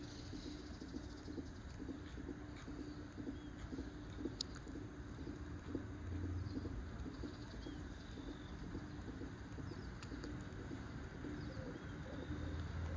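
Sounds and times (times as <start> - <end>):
faint high bird calls: 6.2 - 12.9.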